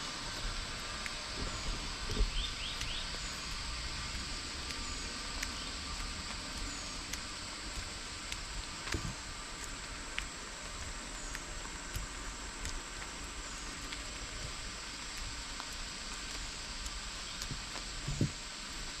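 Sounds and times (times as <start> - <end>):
soft low thumps: 0.0 - 15.4, 17.4 - 18.5
outdoor ambient hiss: 0.0 - 19.0
bird chirps: 1.4 - 6.0.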